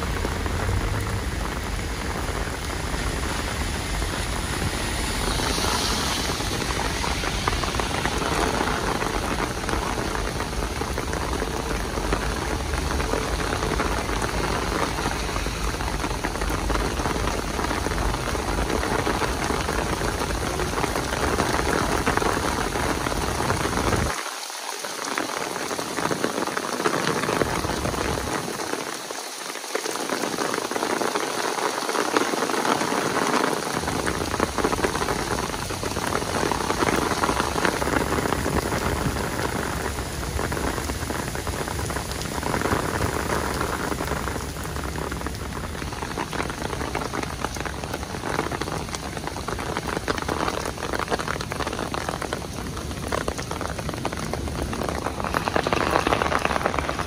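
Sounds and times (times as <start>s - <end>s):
low rumble: 0.0s - 10.4s
heavy rain: 0.0s - 57.0s.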